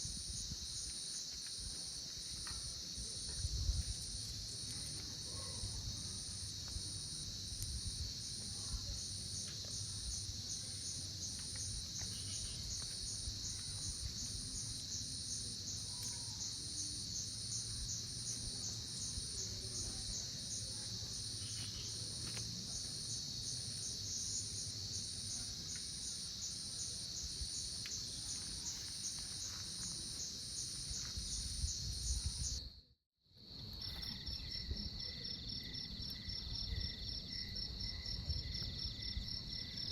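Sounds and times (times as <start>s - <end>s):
crickets pulsing chorus: 5.2s - 32.8s.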